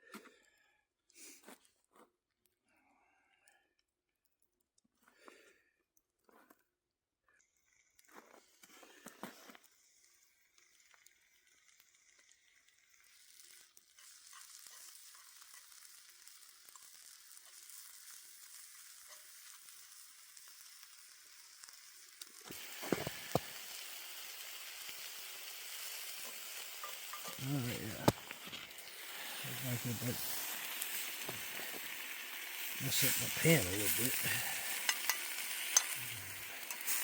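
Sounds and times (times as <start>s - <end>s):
meat sizzling in a pan: 7.8s - 37.0s.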